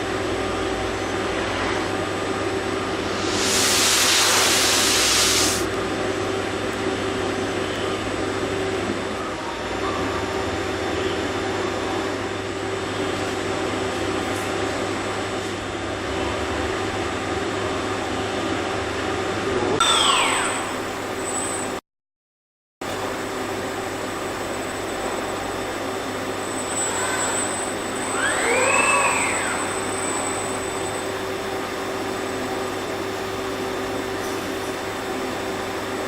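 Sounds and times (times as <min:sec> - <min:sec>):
machinery humming: 0:00.1 - 0:06.1, 0:22.9 - 0:36.0
falling whine: 0:02.4 - 0:05.8, 0:24.1 - 0:33.0
loud hiss: 0:03.0 - 0:05.7.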